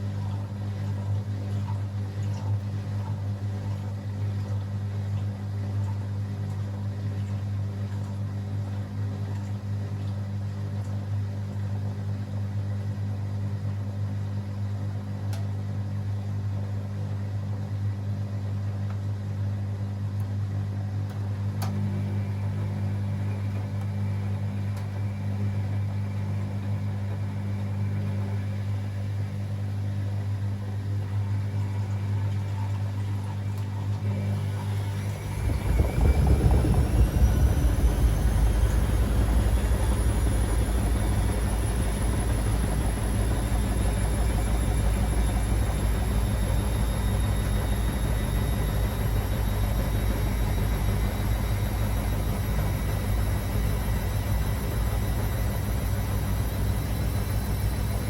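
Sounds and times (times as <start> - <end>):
washing machine spinning: 0.0 - 58.0
rising motor whine: 34.1 - 58.0.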